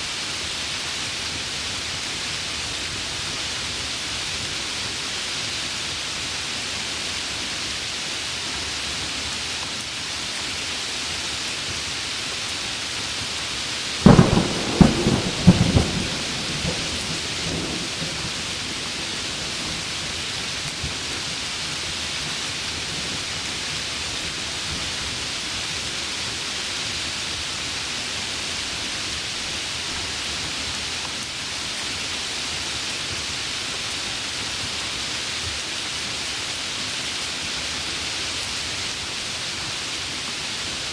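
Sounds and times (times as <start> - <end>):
heavy rain falling: 0.0 - 40.9
thunderclap: 14.0 - 19.9.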